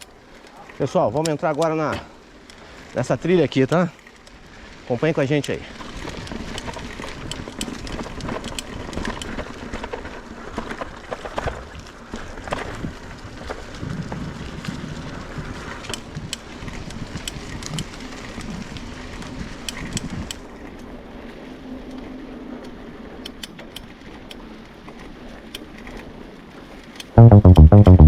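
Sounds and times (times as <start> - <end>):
electronic music with drum-machine beat: 27.2 - 28.0.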